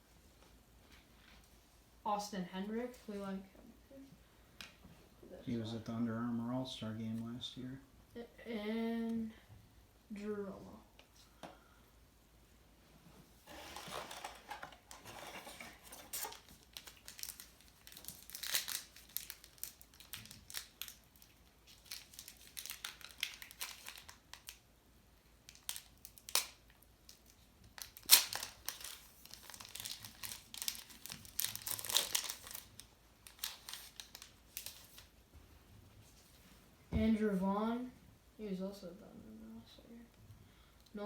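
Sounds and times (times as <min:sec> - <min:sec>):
wrappers crinkling and crackling: 0:13.4 - 0:24.6, 0:25.4 - 0:35.2.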